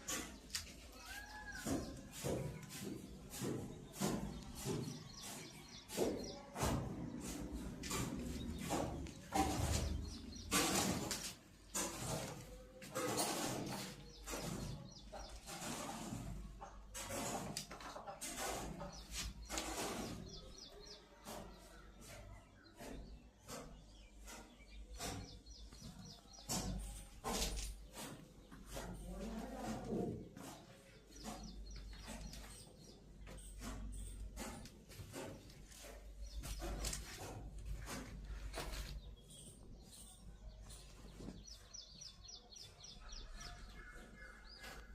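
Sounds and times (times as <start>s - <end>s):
small birds chirping: 0.0s - 44.9s
sharp knocks and clicks: 22.7s - 40.0s.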